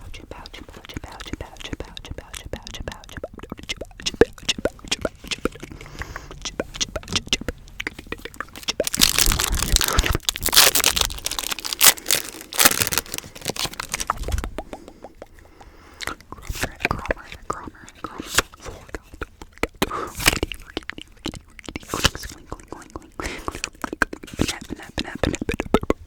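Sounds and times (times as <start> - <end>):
packaging crinkling and tearing: 8.6 - 14.3
taps on crinkly packaging: 8.9 - 14.1.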